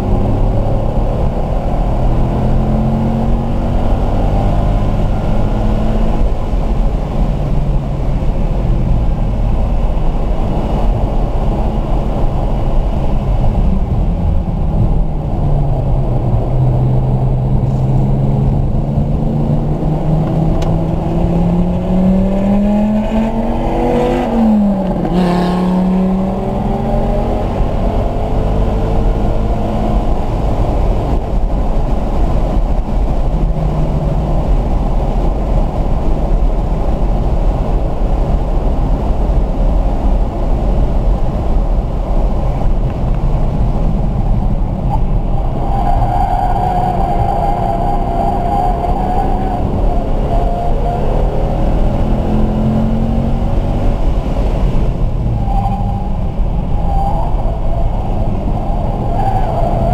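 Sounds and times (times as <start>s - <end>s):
car engine revving: 0.0s - 59.9s
road and wind noise: 0.0s - 59.9s.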